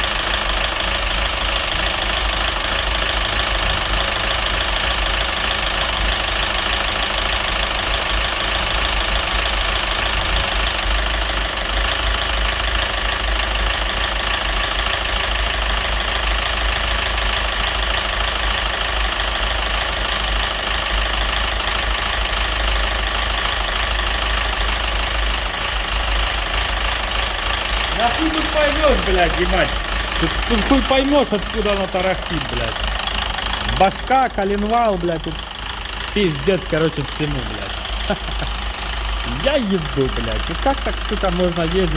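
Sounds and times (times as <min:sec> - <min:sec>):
car engine idling with knocking rattle: 0:00.0 - 0:41.9.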